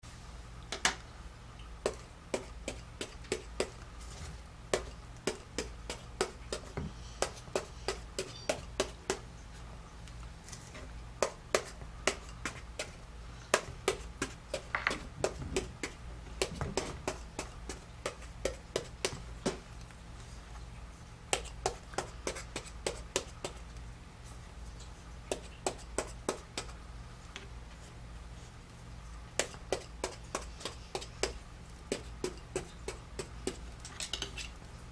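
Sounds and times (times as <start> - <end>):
steady low hum: 0.0 - 34.9
knocks and clicks of kitchen work: 0.7 - 1.0, 1.8 - 3.8, 13.5 - 19.7, 29.4 - 34.5.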